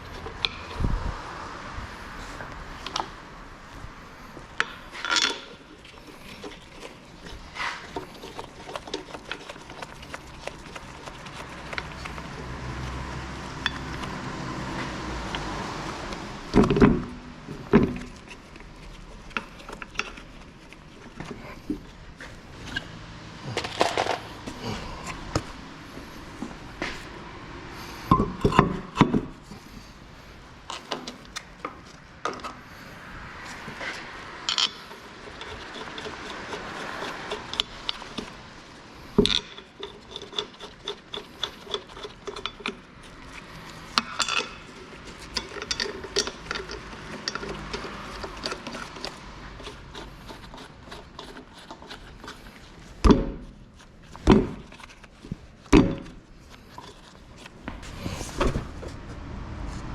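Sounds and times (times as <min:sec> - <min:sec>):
rubbing and scraping: 0:01.9 - 0:59.9
metal tools clinking and knocking: 0:04.6 - 0:05.6, 0:34.4 - 0:36.1, 0:39.2 - 0:42.9, 0:43.9 - 0:48.9.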